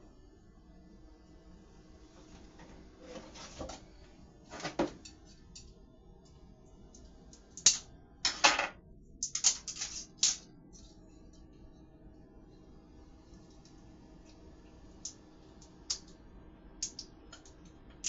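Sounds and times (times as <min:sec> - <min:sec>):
kitchen items clicking and clattering: 0:08.3 - 0:10.4.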